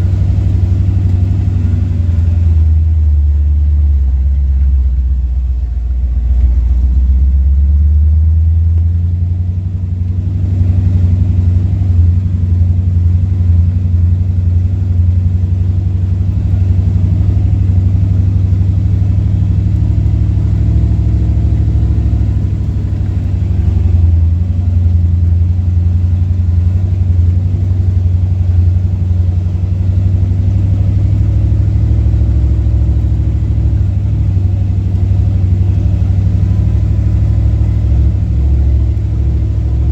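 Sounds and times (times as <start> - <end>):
jeep engine rumbling: 0.0 - 39.9.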